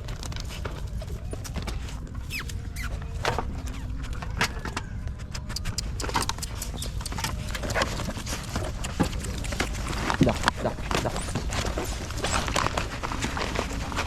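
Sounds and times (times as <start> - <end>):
puppies squeaking and whimpering: 1.4 - 10.1.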